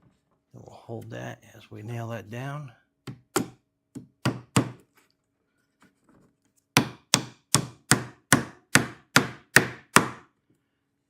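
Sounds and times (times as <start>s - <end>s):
hammer tapping nail into wood: 3.1s - 4.8s, 6.8s - 10.2s.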